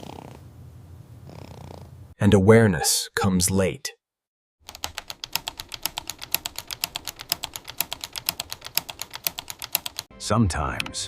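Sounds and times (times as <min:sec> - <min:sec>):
rapid even clicking: 0:04.6 - 0:10.1.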